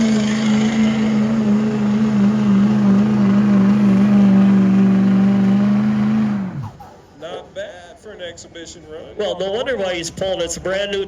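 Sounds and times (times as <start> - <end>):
diesel truck engine at high revs: 0.0 - 7.0.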